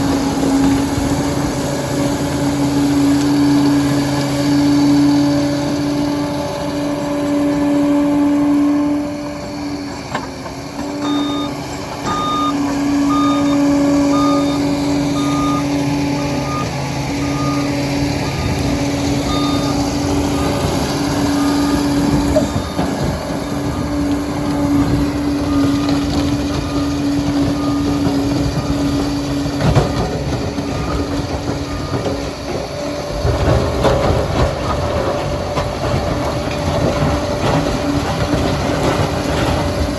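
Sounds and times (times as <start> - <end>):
dozer diesel engine running: 0.0 - 39.9
reversing alarm beeping: 10.8 - 33.7.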